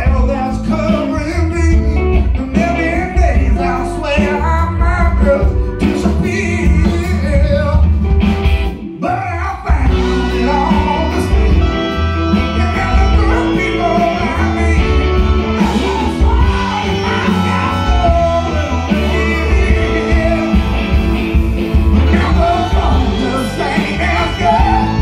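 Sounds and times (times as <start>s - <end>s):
blues-rock band playing: 0.0s - 25.0s
woman singing: 15.6s - 20.8s.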